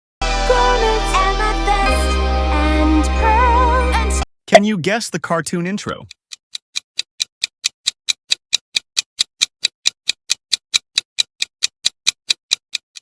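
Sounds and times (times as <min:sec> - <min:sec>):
clock ticking: 0:04.5 - 0:13.0.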